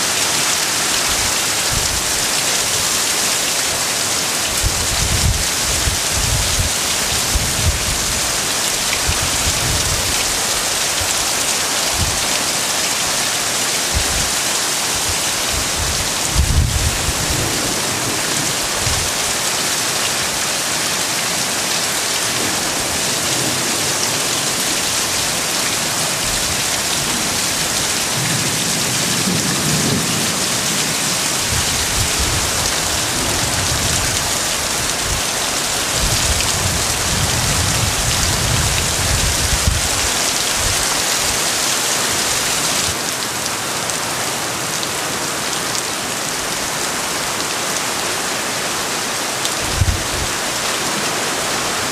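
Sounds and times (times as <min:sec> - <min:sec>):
heavy rain pouring: 0:00.0 - 0:51.9
wind buffeting microphone: 0:01.0 - 0:02.3, 0:04.4 - 0:12.3, 0:13.9 - 0:19.3, 0:24.8 - 0:41.4, 0:49.6 - 0:50.5.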